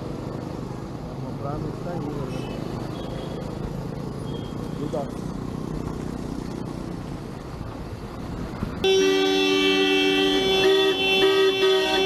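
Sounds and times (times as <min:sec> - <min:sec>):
low traffic noise: 0:00.0 - 0:12.0
second horn honking: 0:08.8 - 0:12.0
vehicle horn blaring: 0:08.8 - 0:12.0.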